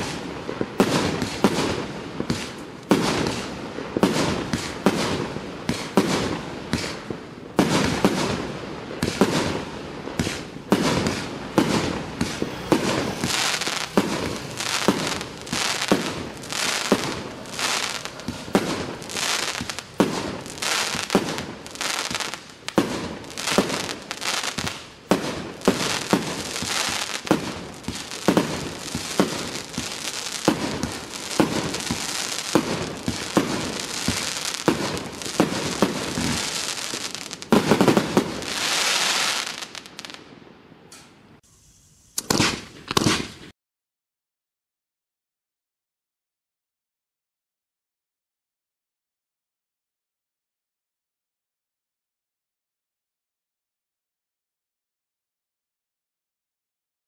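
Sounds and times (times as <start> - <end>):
fireworks bangs: 0.0 - 40.4, 41.6 - 43.5
crackling firework stars: 0.0 - 43.6.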